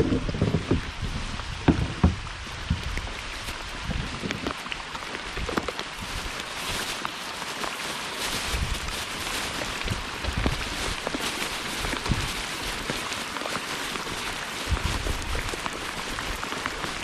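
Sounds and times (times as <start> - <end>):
sharp low thumps: 0.0 - 3.1
hard rain falling: 0.0 - 17.0.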